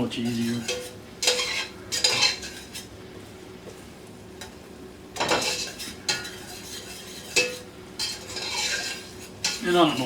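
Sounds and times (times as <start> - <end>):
vegetables sizzling in a pot: 0.0 - 10.0
spoon scraping a pot: 0.2 - 2.9, 5.2 - 10.0.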